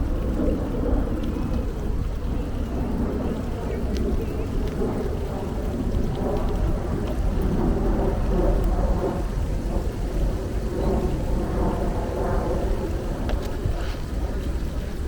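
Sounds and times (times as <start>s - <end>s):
bicycle rolling noise: 0.0s - 15.0s
wind rumble on microphone: 0.0s - 15.0s.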